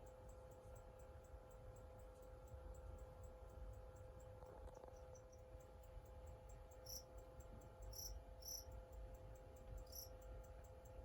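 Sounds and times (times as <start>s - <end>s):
faint high-pitched chirps: 3.8s - 8.8s, 9.6s - 11.0s.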